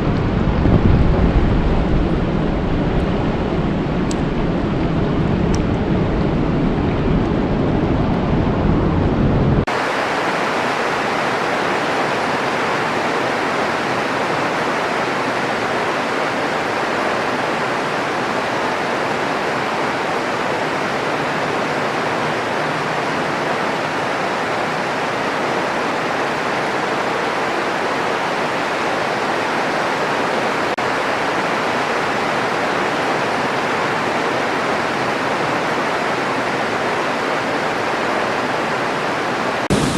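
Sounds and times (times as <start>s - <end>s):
deep rumbling rain: 0.0s - 39.9s
rain hissing: 9.6s - 39.9s.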